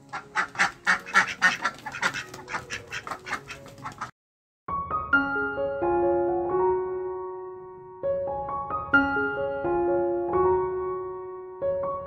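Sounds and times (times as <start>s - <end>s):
slow piano melody: 4.7s - 12.0s.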